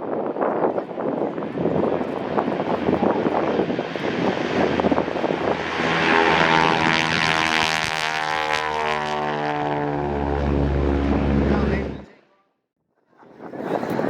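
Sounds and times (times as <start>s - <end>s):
propeller airplane flying past: 1.8s - 12.2s.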